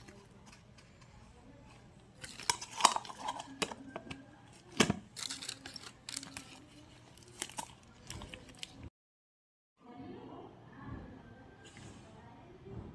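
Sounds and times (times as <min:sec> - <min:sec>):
packaging crinkling and tearing: 0:05.1 - 0:08.8.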